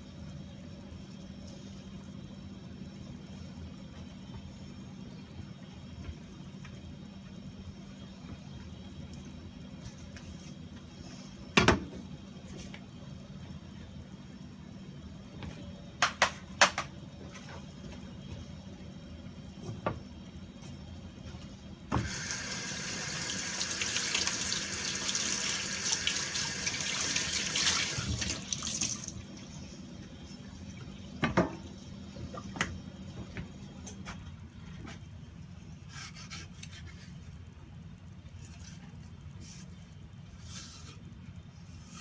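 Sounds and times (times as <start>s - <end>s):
kitchen tap running: 22.0s - 29.2s.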